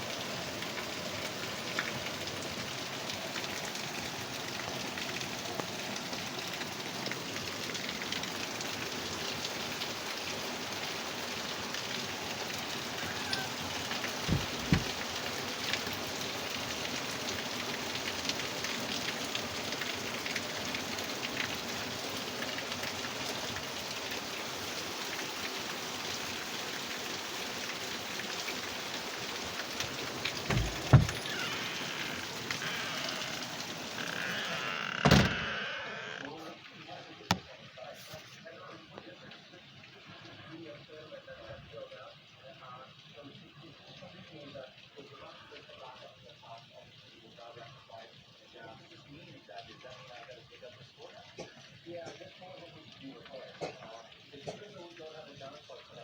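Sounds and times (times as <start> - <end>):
heavy rain falling: 0.0 - 40.5
low double thump: 14.3 - 14.9.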